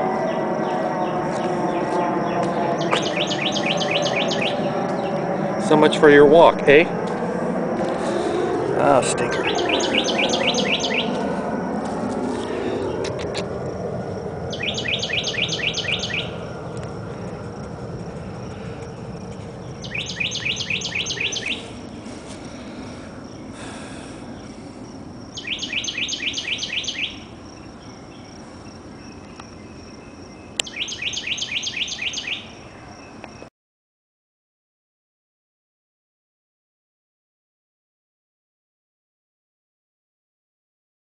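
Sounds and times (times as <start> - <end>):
songbird singing: 0.1 - 6.8, 8.1 - 11.5, 12.4 - 33.5.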